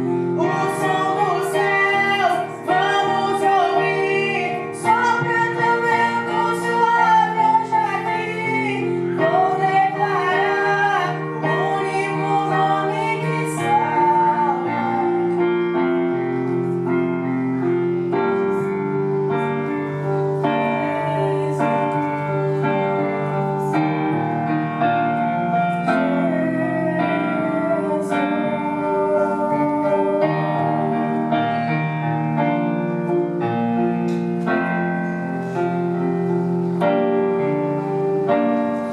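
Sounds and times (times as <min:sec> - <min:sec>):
woman singing gospel: 0:00.0 - 0:15.8, 0:20.4 - 0:24.0, 0:25.8 - 0:31.3
keyboard accompaniment: 0:00.0 - 0:38.9.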